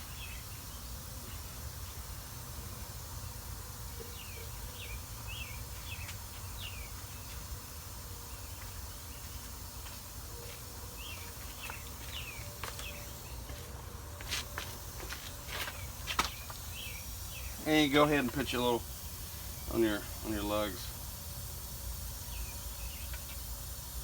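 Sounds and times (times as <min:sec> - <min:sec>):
bird singing chirps: 0:04.0 - 0:07.4, 0:10.3 - 0:13.6, 0:15.8 - 0:17.9, 0:22.2 - 0:23.4.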